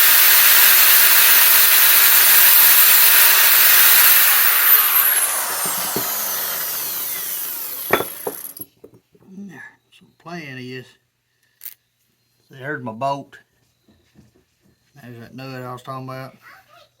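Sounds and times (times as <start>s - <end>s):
motor whine winding down: 0.0s - 8.6s
power tool grinding metal: 0.0s - 8.6s
sharp metal knocks: 7.1s - 9.0s.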